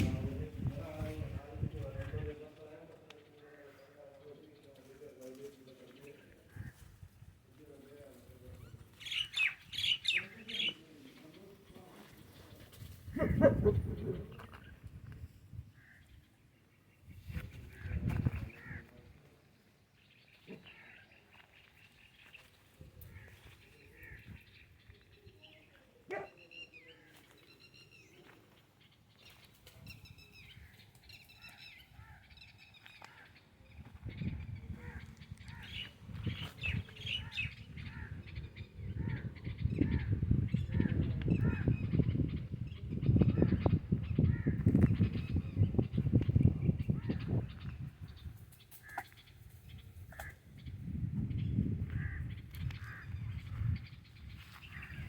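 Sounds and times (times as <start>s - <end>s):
birds chirping: 7.6s - 55.0s.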